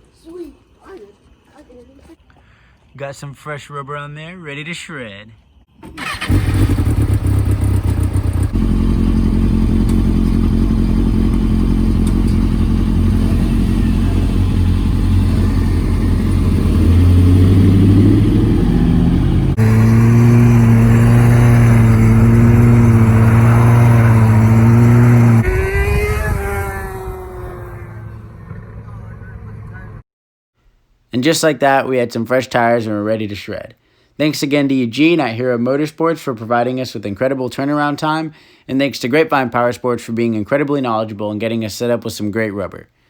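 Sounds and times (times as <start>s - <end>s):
motorcycle engine revving: 5.8s - 29.7s.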